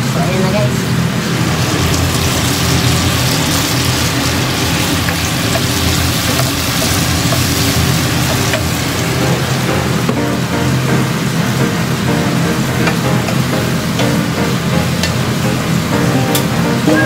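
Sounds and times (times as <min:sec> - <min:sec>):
food sizzling in a frying pan: 0:00.5 - 0:17.0
steady low hum: 0:00.8 - 0:17.0
wooden spoon stirring: 0:03.5 - 0:08.8.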